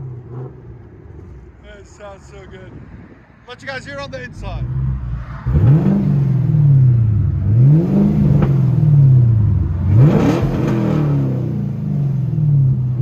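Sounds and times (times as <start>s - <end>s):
car engine revving: 3.9s - 13.0s.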